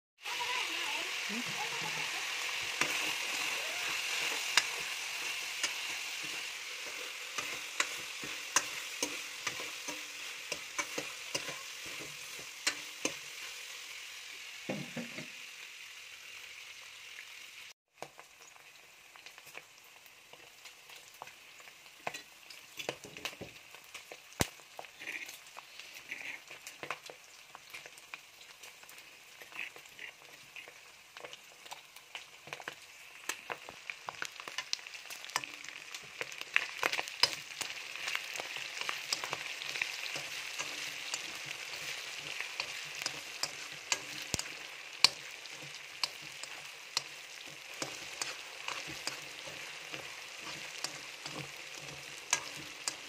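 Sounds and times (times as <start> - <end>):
meat sizzling in oil: 0.2 - 53.0
metal ladle scraping a wok: 2.5 - 13.6, 36.9 - 53.0.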